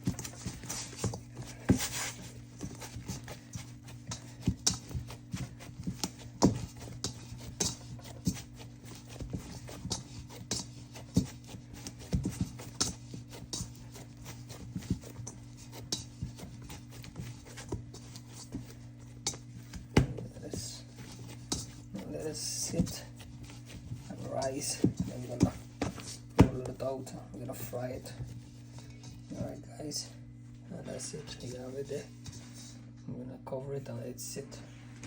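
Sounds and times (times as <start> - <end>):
dough kneaded by hand: 0.0 - 32.9
steady low hum: 0.0 - 35.0
thumps and knocks on work surface: 19.9 - 20.2.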